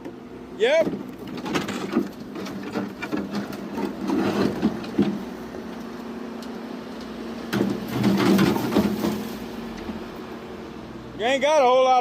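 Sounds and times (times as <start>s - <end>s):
heavy equipment engine running: 0.0s - 12.0s
concrete knocks and clunks: 7.5s - 9.2s.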